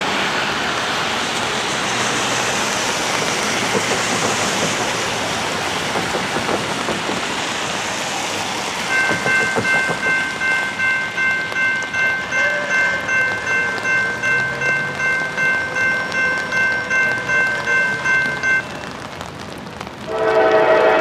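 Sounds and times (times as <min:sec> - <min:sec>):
train rushing noise: 0:00.0 - 0:21.0
railroad warning signal tones: 0:03.1 - 0:07.4, 0:08.7 - 0:19.2.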